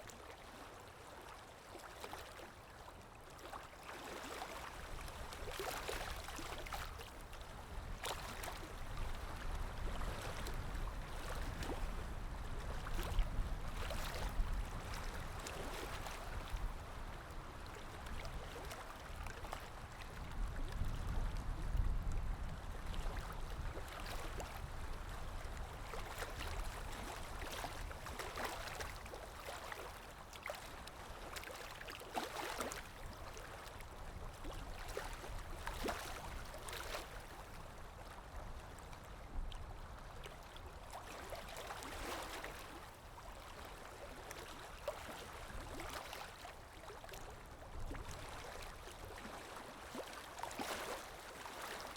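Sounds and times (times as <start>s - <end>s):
river water rippling: 0.0s - 51.9s
small splashy ticks: 26.0s - 33.8s.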